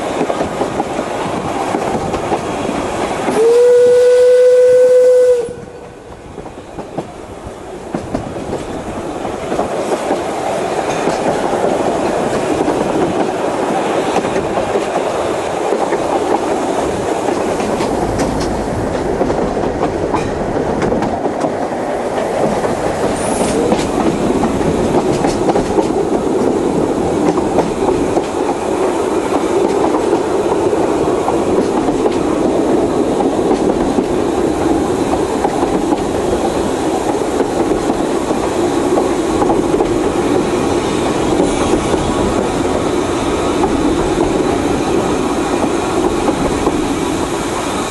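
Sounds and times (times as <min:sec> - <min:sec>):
steam train wheels clattering on rails: 0:00.0 - 0:47.9
steam train whistle: 0:03.3 - 0:06.1.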